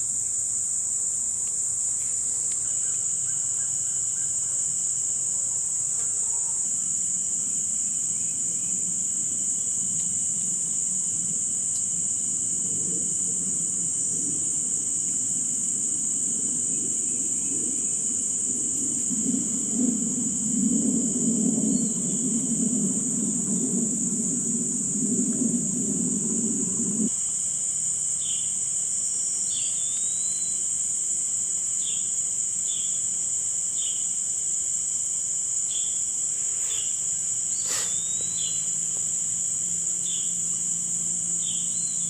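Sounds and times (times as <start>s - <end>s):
insects chorus: 0.0s - 42.0s
low rumbling noise: 15.7s - 27.1s.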